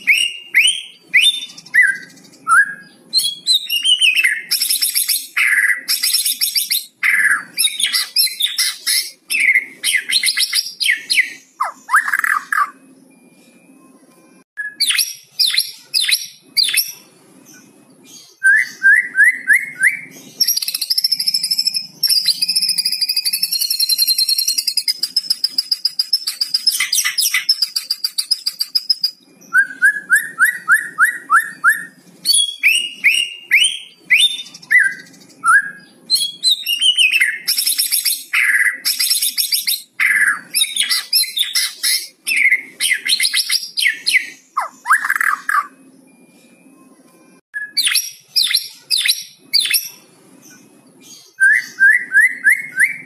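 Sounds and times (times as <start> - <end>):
bird singing whistles and rattles: 18.3 - 45.8.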